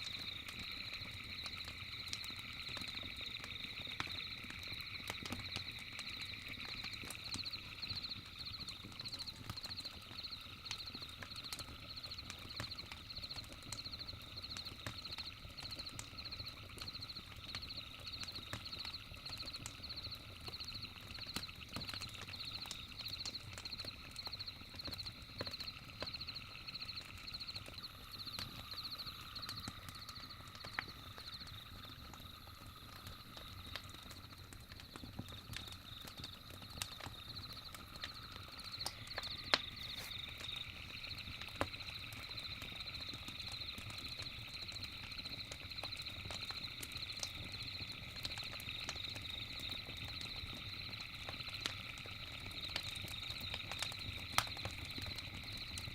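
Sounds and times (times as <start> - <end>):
campfire crackling and popping: 0.0 - 55.9
night insects chirping: 0.0 - 55.9.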